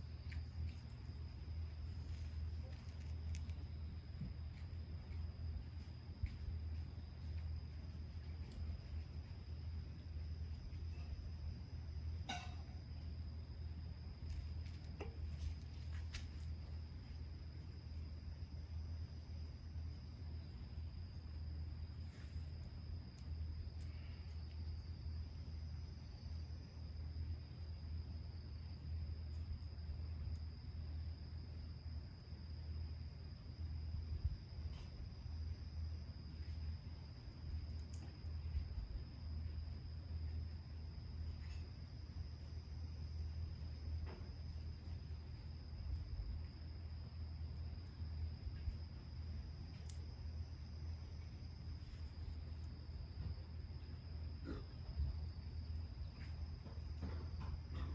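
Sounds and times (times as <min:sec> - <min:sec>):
insects trilling: 0:00.0 - 0:57.9
pulsing insect chirp: 0:00.0 - 0:57.9
faint clicks: 0:49.7 - 0:50.1.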